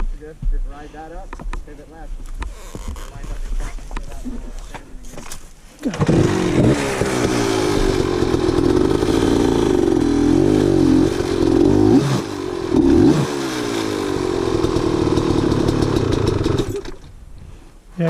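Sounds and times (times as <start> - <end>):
dirt bike engine revving: 5.8 - 17.1.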